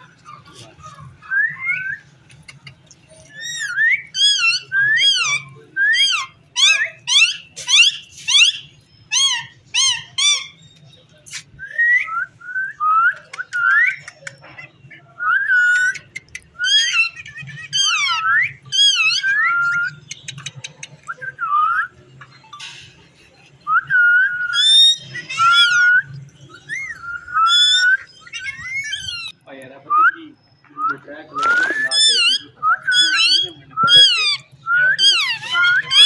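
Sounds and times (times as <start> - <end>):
parakeet calling: 3.4 - 10.6, 15.6 - 20.4, 24.5 - 29.4, 31.4 - 36.0.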